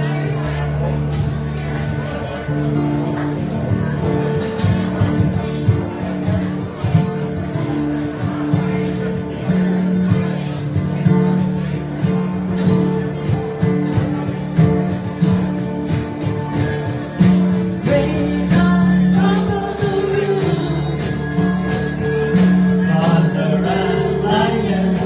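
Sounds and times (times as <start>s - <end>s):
strummed guitar: 0.0s - 25.0s
person singing: 17.8s - 21.7s, 22.7s - 25.0s.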